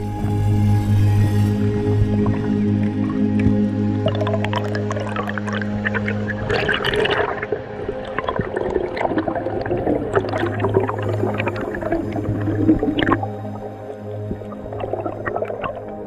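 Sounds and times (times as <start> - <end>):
background music: 0.0 - 16.0
water rushing and bubbling underwater: 0.0 - 16.0.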